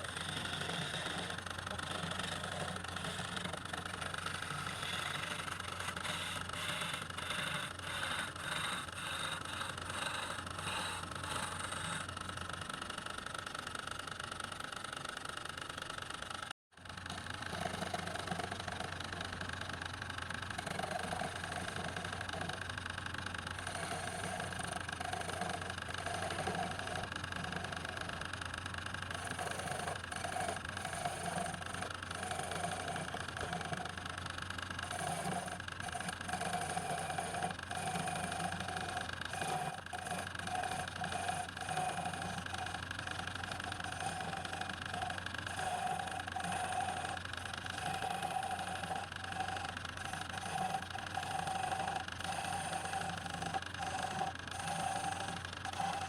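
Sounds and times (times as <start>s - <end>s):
irregular pulsing of turning work: 0.0s - 56.0s
lathe motor hum: 0.0s - 56.0s.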